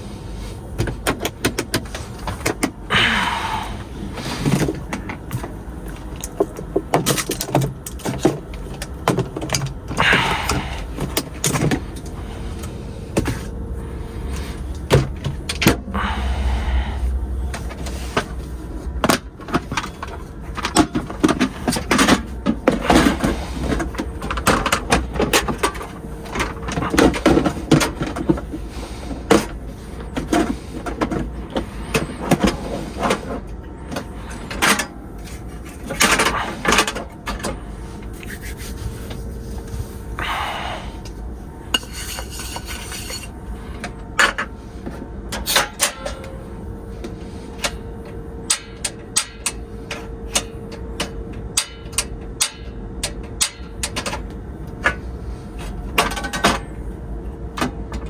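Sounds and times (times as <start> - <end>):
steady hum: 0.0 - 58.0
clicks and knocks of handling: 4.4 - 13.6, 17.5 - 38.6, 47.0 - 56.8
rubbing and scraping: 16.4 - 37.0, 37.7 - 40.2, 41.2 - 43.9.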